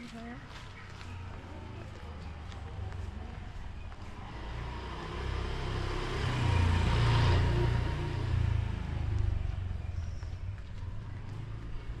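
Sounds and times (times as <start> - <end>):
vehicle driving past: 3.1 - 12.0.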